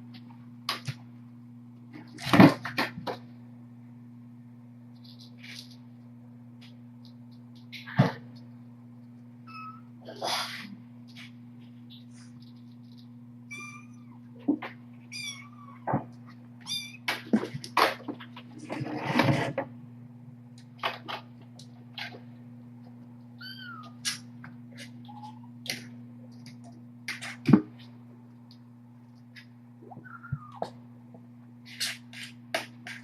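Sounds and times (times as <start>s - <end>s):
low electrical hum: 0.0s - 33.0s
kittens mewing: 15.1s - 17.1s, 23.4s - 24.1s, 29.9s - 30.8s.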